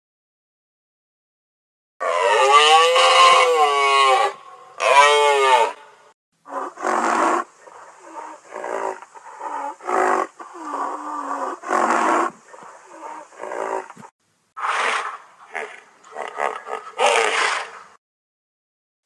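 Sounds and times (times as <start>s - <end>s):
large animal roaring: 2.0s - 5.8s.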